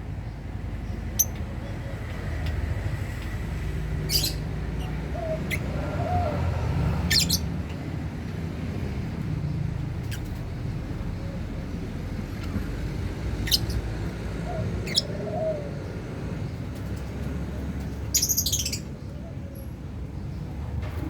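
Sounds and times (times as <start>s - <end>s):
lovebirds chirping: 7.0s - 7.5s, 13.4s - 13.9s, 14.6s - 15.4s, 18.1s - 19.3s.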